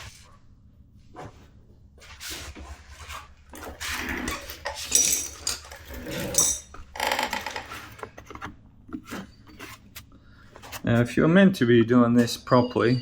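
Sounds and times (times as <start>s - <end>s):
tools and containers clattering: 3.0s - 9.8s.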